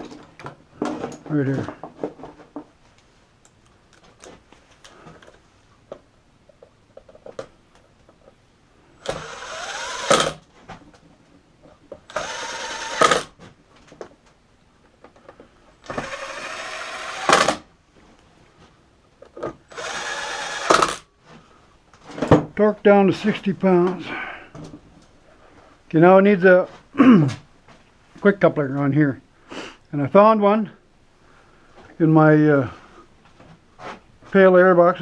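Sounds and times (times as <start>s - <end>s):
cordless screw gun driving screws: 9.0s - 10.4s, 12.1s - 13.4s, 15.8s - 17.7s, 19.7s - 21.1s.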